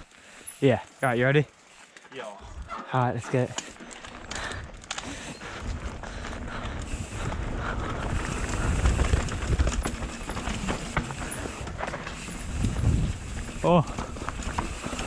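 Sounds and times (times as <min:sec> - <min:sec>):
bike knocking and rattling: 0:02.8 - 0:15.0
bike tyre rumble on dirt: 0:03.4 - 0:15.0
wind buffeting microphone: 0:04.3 - 0:15.0.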